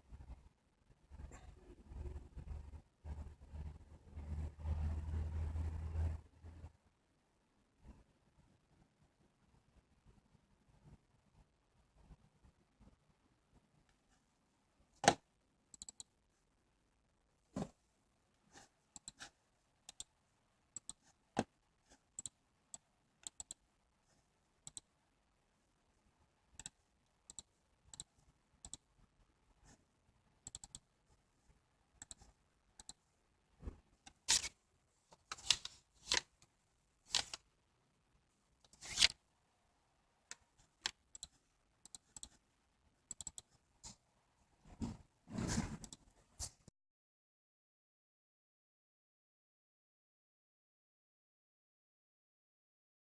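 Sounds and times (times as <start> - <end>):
laptop keys clicking: 30.5 - 30.8.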